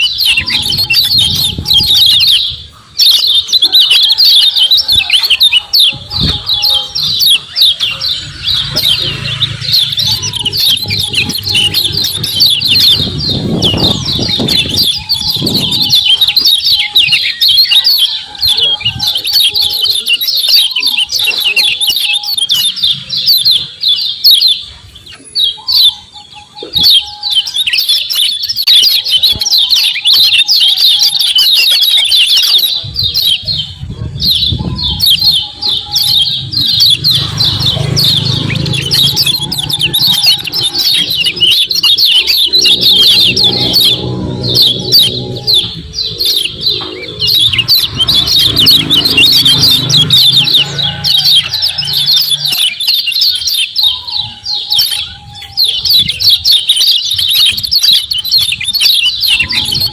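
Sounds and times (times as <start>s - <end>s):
bird chattering chirps: 0.0s - 59.9s
low rumble: 42.4s - 52.2s.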